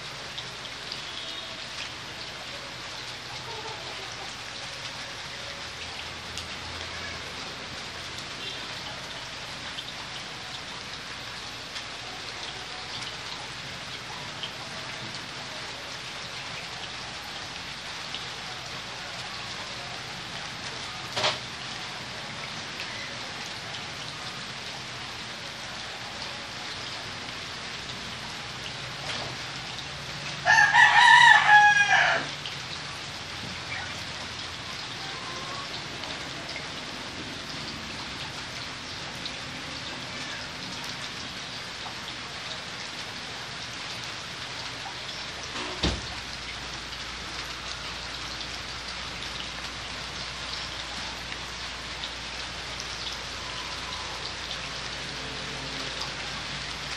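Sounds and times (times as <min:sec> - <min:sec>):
steady rain-like hiss: 0:00.0 - 0:56.9
rooster crowing: 0:30.4 - 0:32.4.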